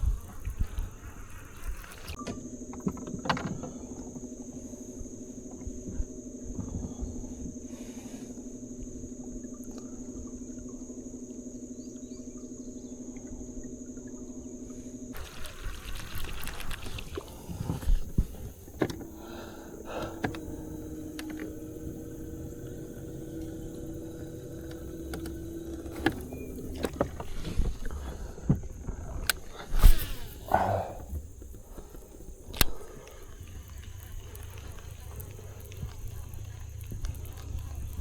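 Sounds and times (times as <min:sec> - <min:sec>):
insects buzzing: 0:00.0 - 0:38.0
small boat motor humming: 0:00.0 - 0:38.0
steady hum: 0:00.0 - 0:38.0
knocks and clatter in boat: 0:02.1 - 0:04.3, 0:16.5 - 0:29.7.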